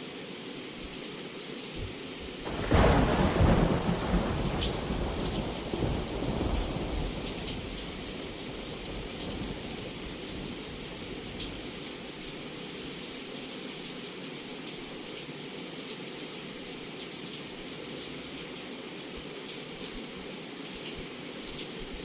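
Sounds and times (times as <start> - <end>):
heavy rain on a window: 0.1 - 22.0
low thunder rumble: 2.5 - 11.8.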